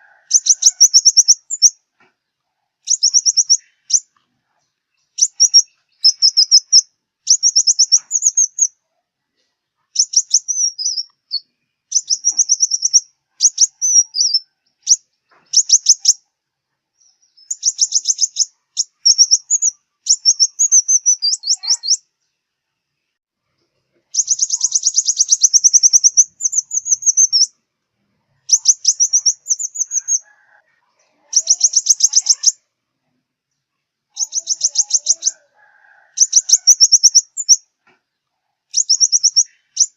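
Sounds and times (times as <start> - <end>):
bird trilling song: 0.0 - 1.8, 2.8 - 4.2, 4.9 - 8.8, 9.9 - 16.3, 17.0 - 22.1, 24.1 - 27.6, 28.3 - 32.7, 34.1 - 35.4, 36.2 - 37.7, 38.7 - 39.9.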